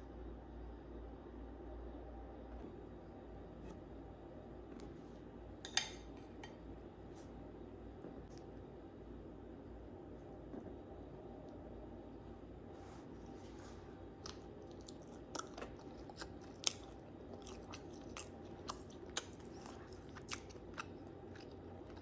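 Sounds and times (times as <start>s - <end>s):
faint steady hum: 0.0s - 22.0s
person chewing: 14.1s - 22.0s.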